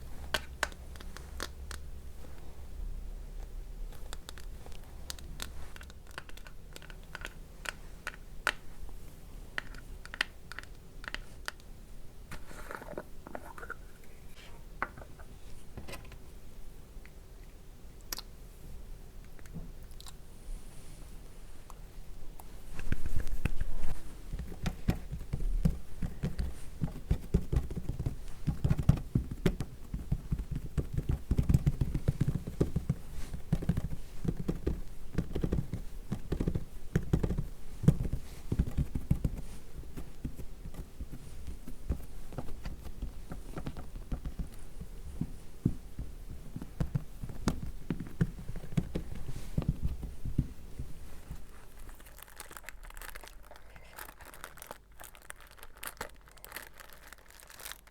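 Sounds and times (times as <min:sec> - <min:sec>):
fingers patting skin: 0:24.4 - 0:51.5.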